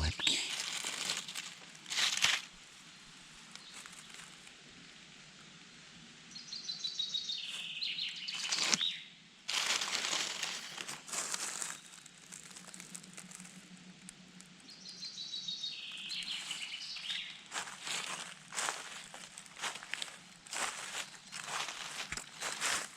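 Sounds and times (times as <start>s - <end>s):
rustling of forest-floor litter: 0.0s - 5.1s, 6.5s - 22.9s
songbird singing trills: 6.3s - 9.1s, 14.6s - 18.2s.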